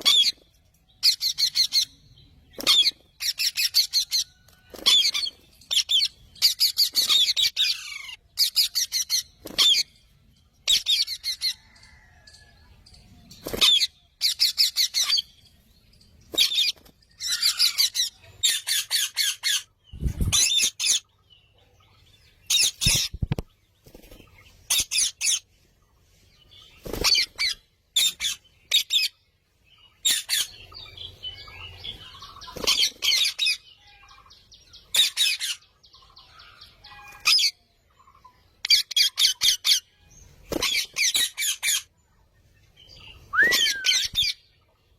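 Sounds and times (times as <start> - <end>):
parrots chirping and squawking: 0.0 - 0.4, 1.0 - 2.0, 2.6 - 9.9, 10.6 - 12.1, 13.6 - 15.4, 16.4 - 21.1, 22.5 - 23.4, 24.7 - 25.5, 27.0 - 29.1, 30.0 - 30.6, 32.7 - 34.0, 34.9 - 35.7, 36.5 - 37.6, 38.6 - 39.9, 40.6 - 41.9.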